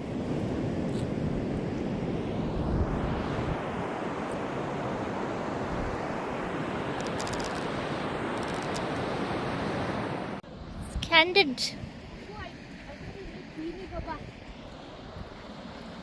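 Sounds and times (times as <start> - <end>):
wind buffeting microphone: 10.6 - 16.0.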